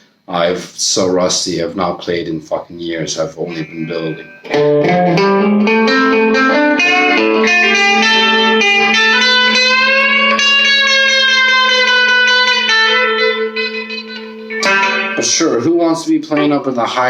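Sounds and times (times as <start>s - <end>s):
overdriven electric guitar: 3.5s - 17.0s.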